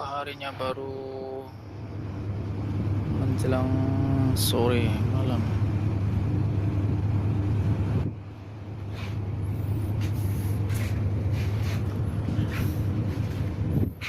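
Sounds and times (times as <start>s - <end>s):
large vehicle engine humming: 0.0s - 14.0s.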